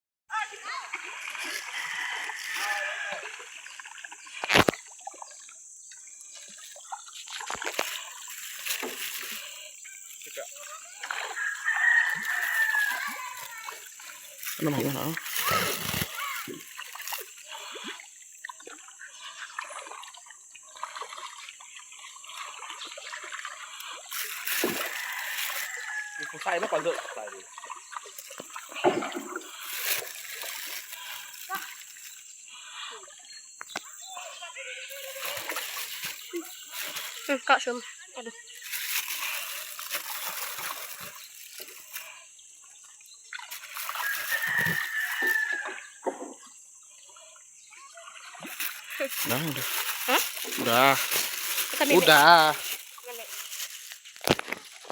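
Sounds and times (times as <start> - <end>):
river water trickling: 0.3 - 54.9
small water splashes: 0.3 - 54.9
rooster crowing: 1.5 - 3.5, 11.1 - 13.8, 24.8 - 26.9, 43.8 - 45.9.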